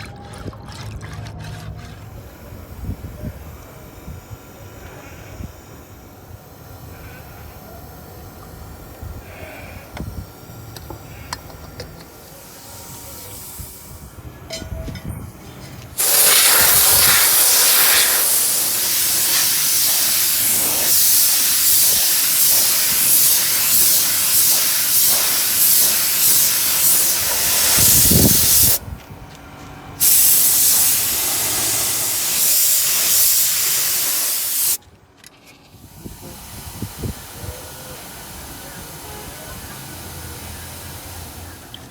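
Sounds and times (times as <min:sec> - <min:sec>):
aerosol spray can hissing: 0:16.0 - 0:28.8, 0:30.0 - 0:34.8
faint handling noises: 0:34.8 - 0:35.8.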